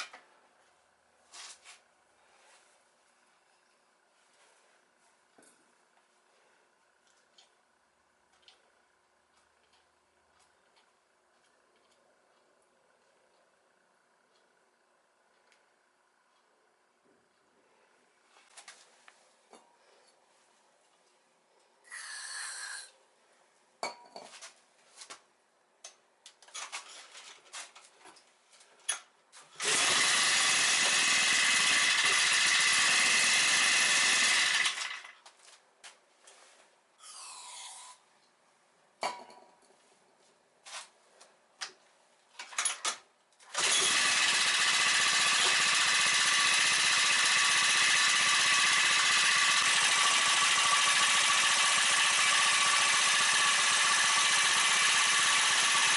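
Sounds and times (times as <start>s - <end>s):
two-stroke mower engine running: 29.6s - 35.2s, 43.5s - 55.9s.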